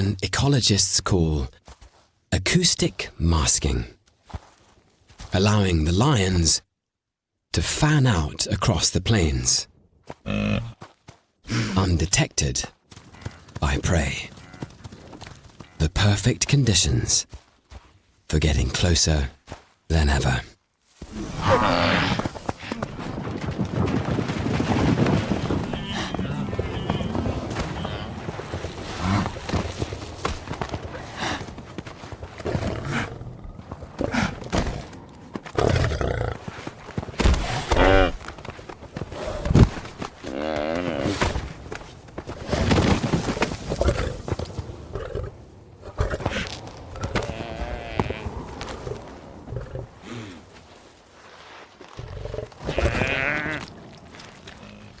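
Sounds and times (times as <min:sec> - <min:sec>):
buffalo bawling: 0:25.7 - 0:28.3, 0:37.6 - 0:38.2, 0:52.0 - 0:55.0
lions growling: 0:32.3 - 0:36.7, 0:43.7 - 0:50.3, 0:52.0 - 0:55.0
buffalo bellowing: 0:52.6 - 0:53.7.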